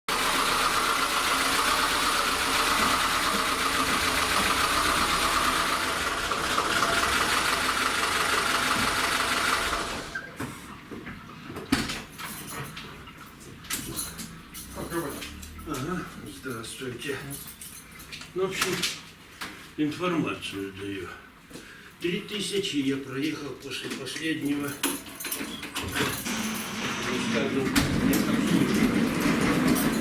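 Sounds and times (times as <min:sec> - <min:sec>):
car engine running: 0:00.1 - 0:10.2.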